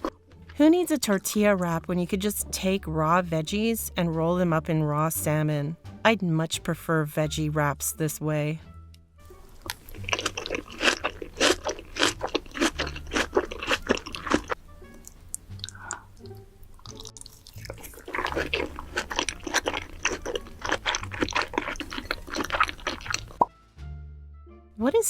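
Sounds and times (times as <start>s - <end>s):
crunchy chewing: 0.0s - 0.6s, 9.5s - 23.5s.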